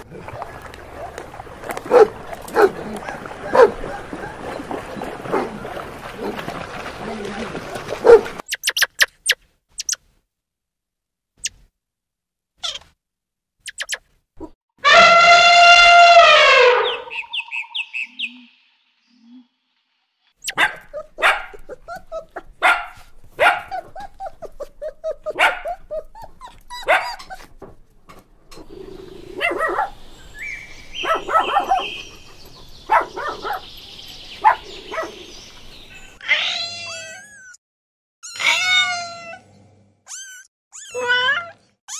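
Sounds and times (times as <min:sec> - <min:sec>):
dogs barking and yipping: 0:00.0 - 0:08.4, 0:20.4 - 0:27.8, 0:28.6 - 0:35.5
dog long held call: 0:01.8 - 0:05.8, 0:14.8 - 0:17.7, 0:28.8 - 0:33.7
dog whimpering: 0:20.9 - 0:22.6, 0:23.6 - 0:27.6, 0:40.1 - 0:41.6.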